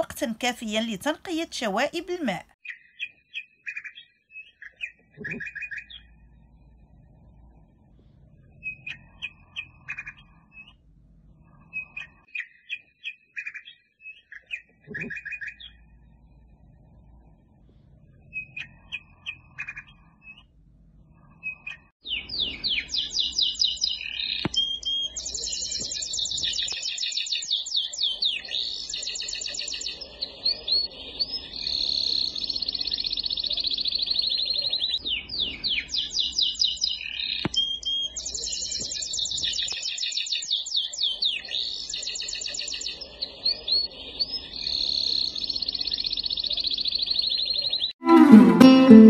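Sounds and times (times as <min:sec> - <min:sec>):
songbird chirps and trills: 0:00.0 - 0:10.8, 0:21.2 - 0:49.0.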